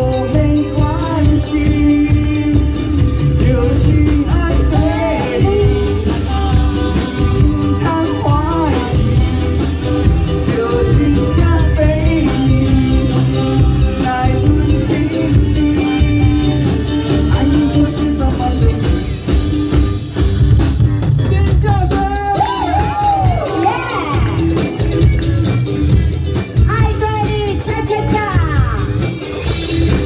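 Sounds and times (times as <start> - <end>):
person singing: 0.0 - 19.2
live pop-rock band: 0.0 - 30.0.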